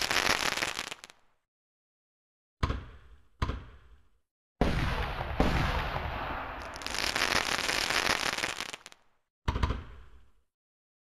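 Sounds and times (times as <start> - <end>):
fireworks bursting: 0.0 - 1.3, 4.6 - 9.1
sharp firework bangs: 4.6 - 8.9.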